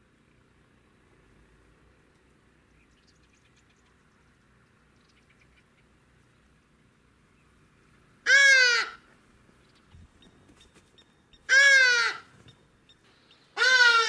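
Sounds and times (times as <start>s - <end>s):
loud bird call: 8.3s - 9.1s, 11.4s - 12.6s, 13.4s - 14.0s.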